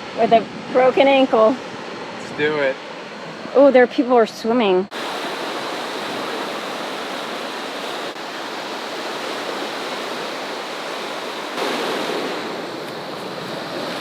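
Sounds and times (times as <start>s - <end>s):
ocean surf washing onto beach: 4.9s - 14.0s
wave breaking: 4.9s - 14.0s.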